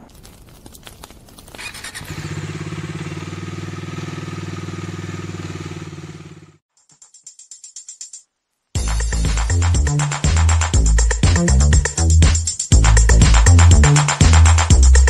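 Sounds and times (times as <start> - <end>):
motorcycle engine running: 1.6 - 6.6.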